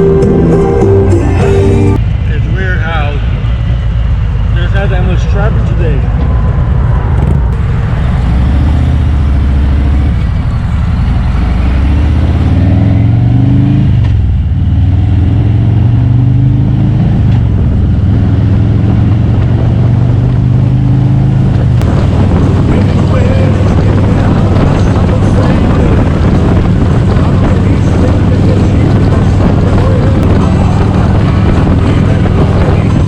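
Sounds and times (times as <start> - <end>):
motorcycle engine running: 0.0 - 2.0, 7.2 - 33.0.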